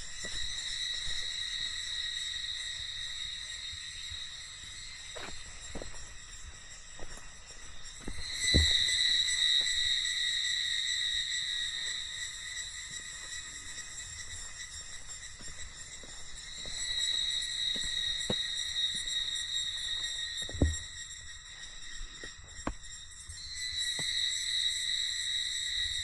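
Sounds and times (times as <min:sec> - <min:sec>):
cicadas droning: 0:00.0 - 0:26.0.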